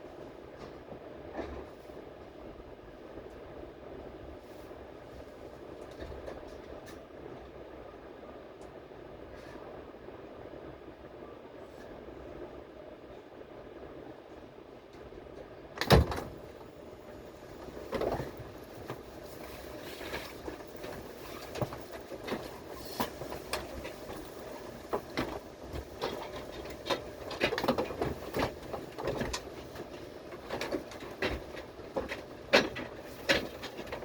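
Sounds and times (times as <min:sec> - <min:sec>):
subway train rumble: 0:00.0 - 0:34.0
wheel and car body clacks: 0:17.6 - 0:34.0.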